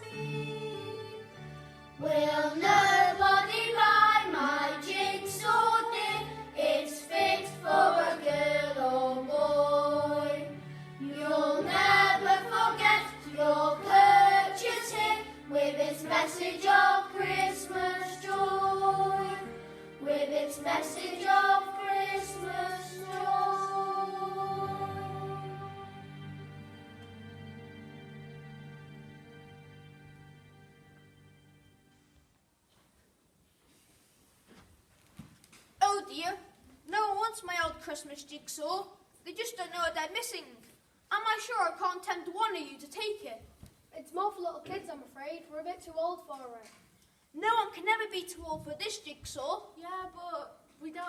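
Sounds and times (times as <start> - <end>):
children's choir singing: 0.0 - 1.4, 2.0 - 26.6
instrumental accompaniment: 0.0 - 32.4.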